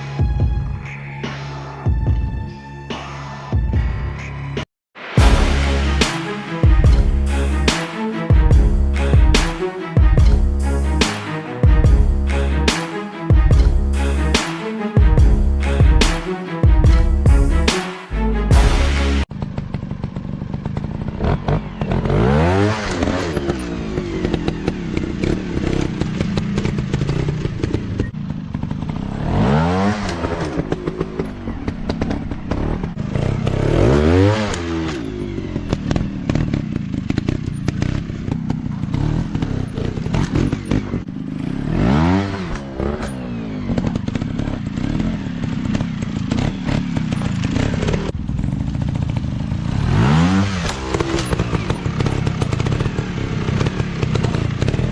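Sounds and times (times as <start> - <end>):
dirt bike engines revving: 18.6 - 54.9.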